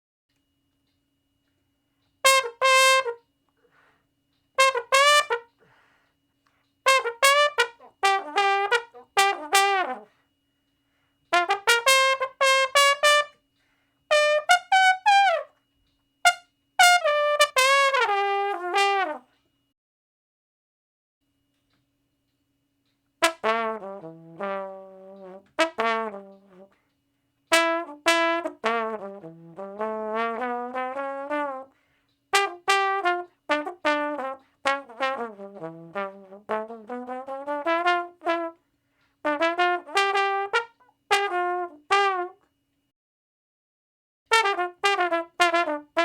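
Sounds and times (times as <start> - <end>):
tuba playing: 2.2 - 3.3, 4.6 - 5.7, 6.8 - 10.1, 11.3 - 13.4, 14.1 - 15.6, 16.2 - 19.3, 23.2 - 26.8, 27.5 - 38.6, 39.2 - 42.5, 44.3 - 46.0.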